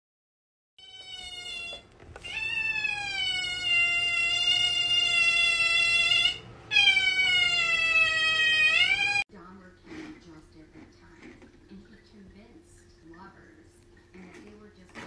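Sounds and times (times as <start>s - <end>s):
otter whining call: 0.9s - 9.2s.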